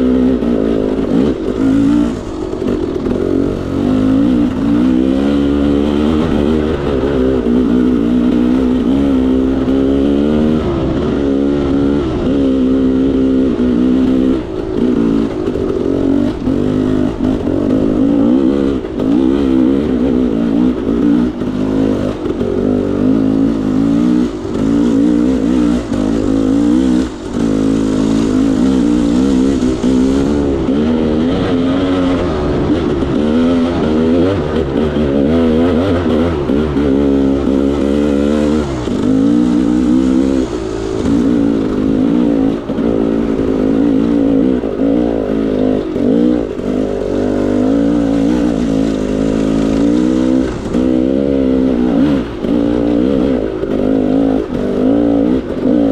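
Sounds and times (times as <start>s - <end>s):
two-stroke motorcycle engine revving: 0.0s - 55.9s.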